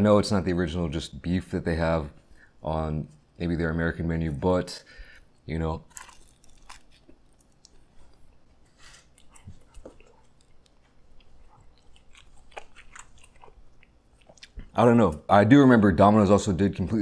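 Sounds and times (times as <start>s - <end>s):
person chewing crust: 5.0s - 15.2s.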